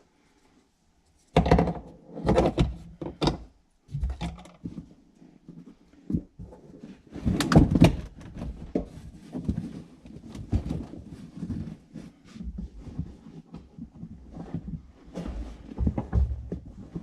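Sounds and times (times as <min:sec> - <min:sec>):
carpet scraping rustles: 0:08.4 - 0:17.0
knocks and thumps: 0:14.4 - 0:17.0.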